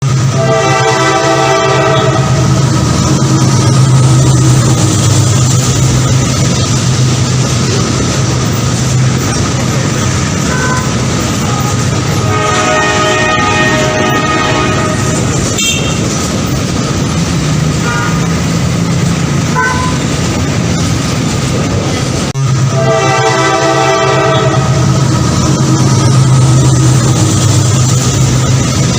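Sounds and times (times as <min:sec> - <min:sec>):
train locomotive rumbling past: 0:00.0 - 0:28.9
train horn notes: 0:00.2 - 0:02.6, 0:10.5 - 0:16.2, 0:17.8 - 0:18.4, 0:19.5 - 0:20.1, 0:22.6 - 0:25.0.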